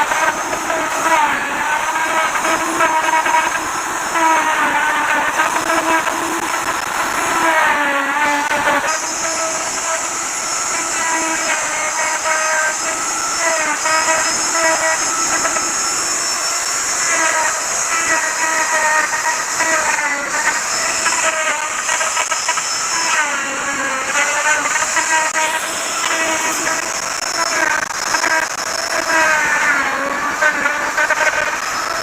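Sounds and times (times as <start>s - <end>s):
wood router cutting wood: 0.0s - 32.0s.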